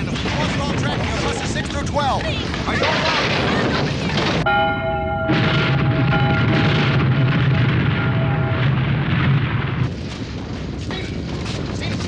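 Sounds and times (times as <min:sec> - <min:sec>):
low earthquake rumble: 0:00.0 - 0:12.0
steady multi-pitch tone: 0:04.5 - 0:09.0
crashing noise: 0:05.2 - 0:10.8.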